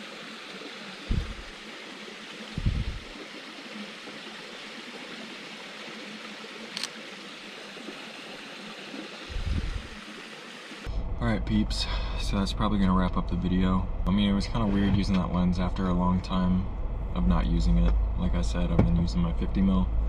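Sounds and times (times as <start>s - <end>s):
rushing outdoor hiss: 0.0s - 10.9s
dull low thumps: 1.1s - 1.6s, 2.5s - 3.1s, 9.3s - 9.9s, 16.5s - 20.0s.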